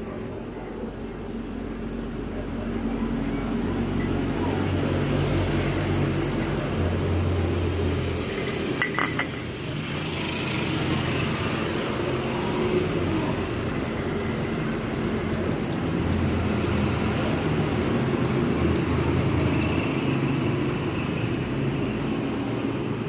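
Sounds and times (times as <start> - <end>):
road traffic: 0.0 - 23.0
passing motorcycles: 2.6 - 23.0
tableware clinking: 8.3 - 9.5.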